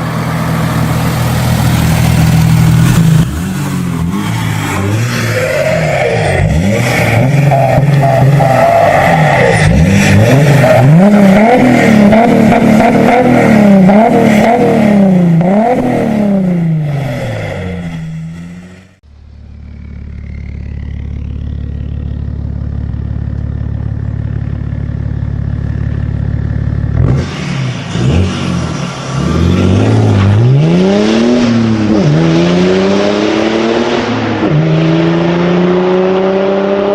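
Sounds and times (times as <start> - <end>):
low diesel engine drone: 0.0 - 33.0
diesel engine revving: 0.0 - 36.9.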